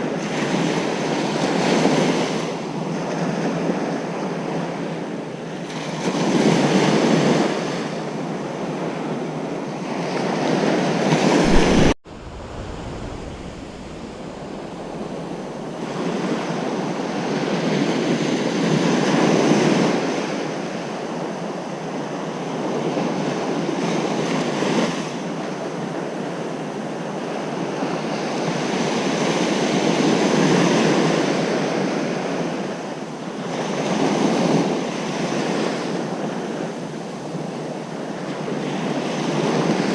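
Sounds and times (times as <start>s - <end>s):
ocean waves breaking on beach: 0.0s - 28.9s.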